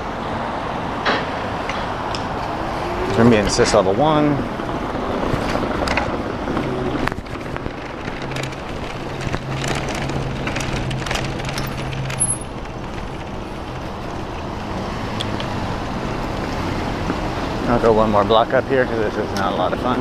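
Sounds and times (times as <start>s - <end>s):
tyres rumbling on bricks: 1.8s - 20.0s
steady low hum: 2.2s - 9.9s
bike rattling clicks and knocks: 2.2s - 14.5s.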